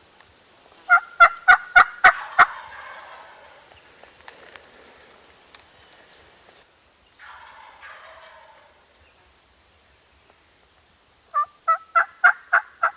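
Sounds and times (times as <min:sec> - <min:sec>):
turkey yelps: 0:00.9 - 0:03.7, 0:07.2 - 0:08.9, 0:11.3 - 0:12.9
turkey gobbling: 0:00.9 - 0:03.8, 0:07.2 - 0:09.0, 0:11.3 - 0:12.9.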